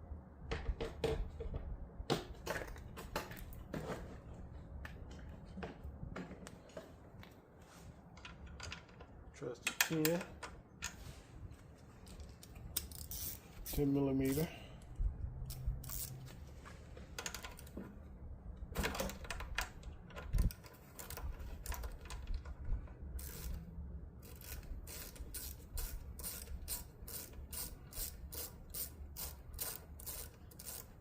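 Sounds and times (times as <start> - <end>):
hand ratchet clicking: 12.7 - 14.5, 15.5 - 16.2, 23.2 - 31.0.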